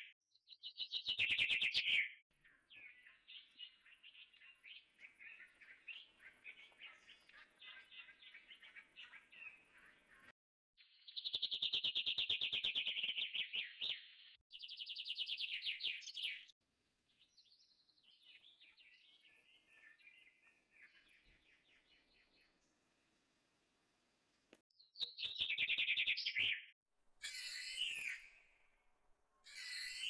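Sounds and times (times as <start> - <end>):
bird chirping and trilling: 25.0 - 28.5, 29.4 - 30.0.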